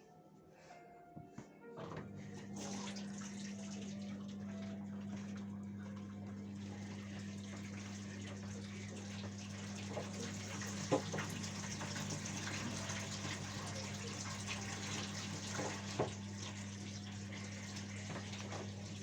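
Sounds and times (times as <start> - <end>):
washing machine low hum: 0.0 - 19.0
water rushing into drum: 6.6 - 19.0.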